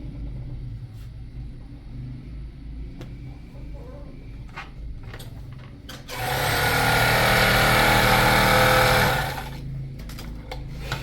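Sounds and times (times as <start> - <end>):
machine motor humming and hissing: 6.1 - 9.6.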